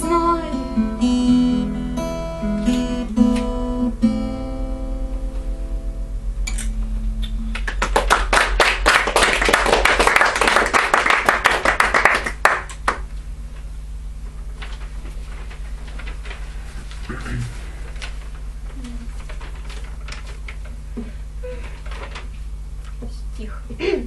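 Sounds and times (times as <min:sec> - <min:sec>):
audience applause: 0:07.5 - 0:13.0.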